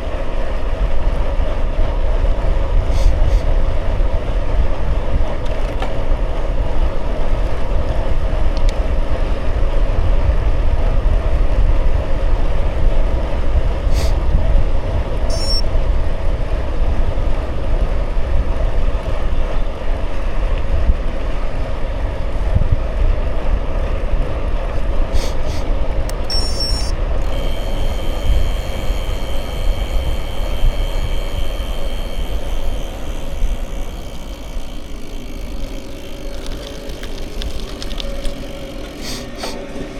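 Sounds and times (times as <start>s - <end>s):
wind buffeting microphone: 0.0s - 38.9s
faint high tone: 15.3s - 15.7s.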